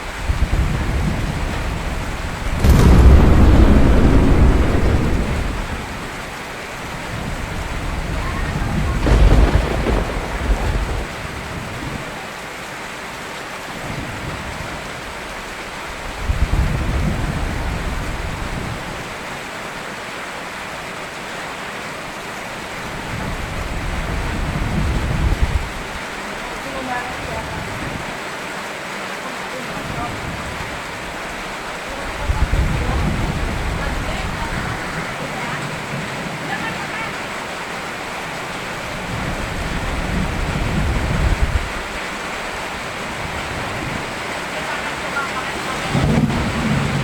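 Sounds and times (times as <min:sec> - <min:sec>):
steady rain: 0:00.0 - 0:47.0
thunder crack and rumble: 0:00.4 - 0:06.4, 0:07.6 - 0:12.1.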